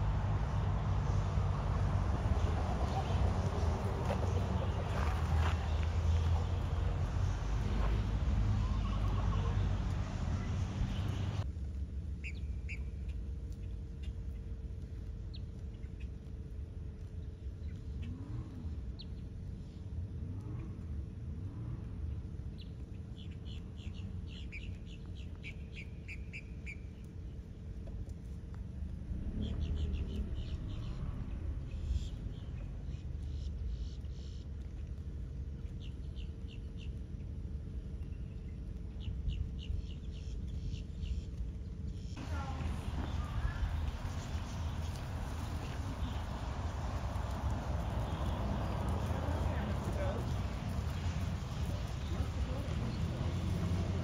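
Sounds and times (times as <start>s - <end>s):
steady low rumble: 0.0s - 54.0s
bird chirping: 38.0s - 54.0s.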